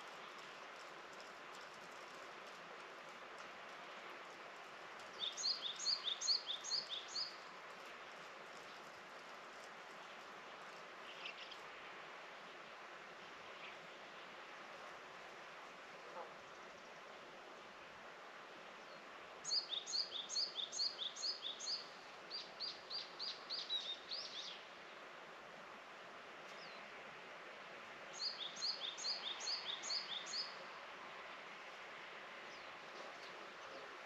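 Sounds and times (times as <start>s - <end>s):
steady outdoor hiss: 0.0s - 34.0s
songbird chirping: 5.1s - 7.5s, 18.9s - 24.7s, 28.1s - 30.8s.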